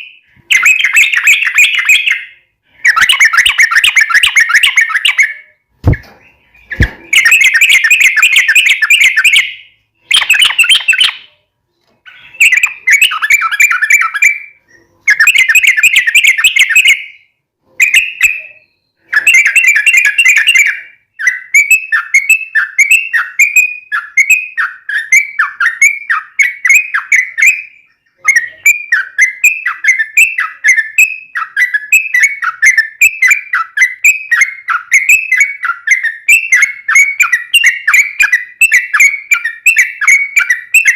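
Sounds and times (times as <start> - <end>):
bulbul singing: 0.0 - 40.9
repeated down-slurred whistled notes: 12.1 - 40.9.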